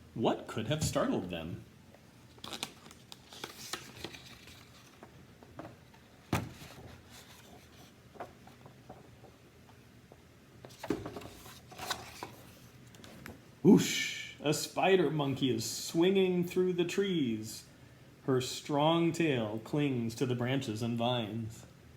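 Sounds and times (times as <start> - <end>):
paper rustling: 2.3 - 5.1, 10.7 - 13.3.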